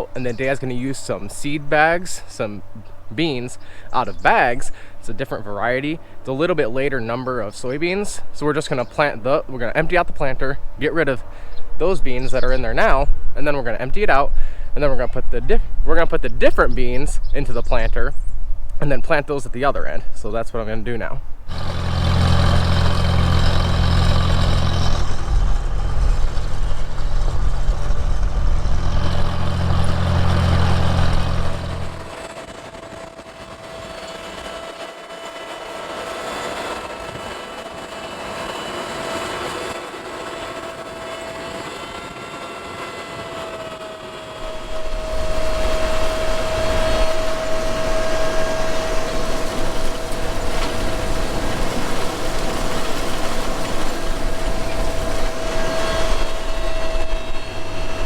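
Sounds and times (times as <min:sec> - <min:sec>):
steady whine: 0:00.0 - 0:58.0
tractor engine running: 0:21.4 - 0:58.0.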